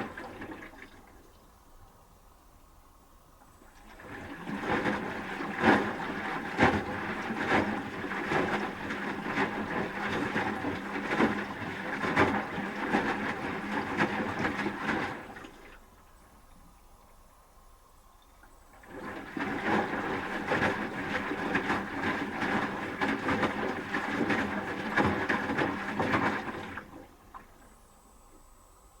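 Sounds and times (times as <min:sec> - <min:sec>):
faint motor hum: 0:00.0 - 0:29.0
water sloshing: 0:18.2 - 0:27.8.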